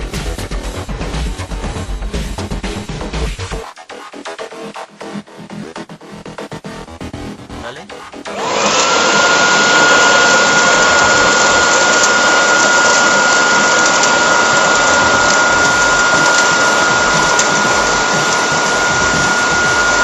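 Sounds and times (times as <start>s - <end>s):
garden blower motor whining: 8.3s - 20.0s.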